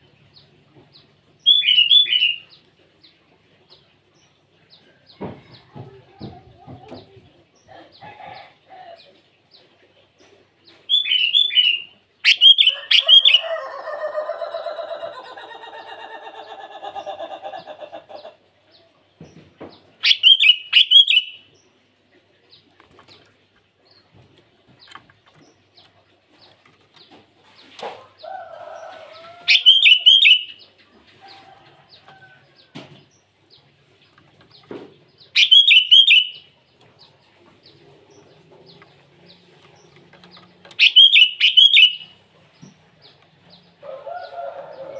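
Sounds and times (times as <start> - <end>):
bird chattering calls: 35.3 - 36.5, 40.7 - 42.2.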